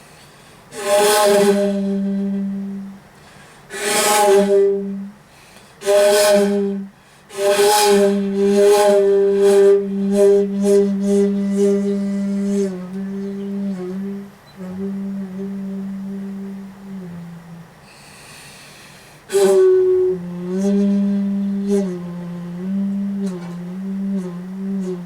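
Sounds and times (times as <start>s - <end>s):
bamboo flute low notes: 0.8s - 3.1s, 3.7s - 5.2s, 5.8s - 18.1s, 19.3s - 25.0s.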